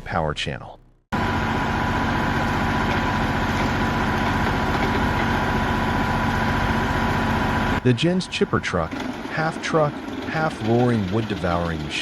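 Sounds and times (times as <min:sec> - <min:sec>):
wood chipper engine running: 0:01.1 - 0:12.0.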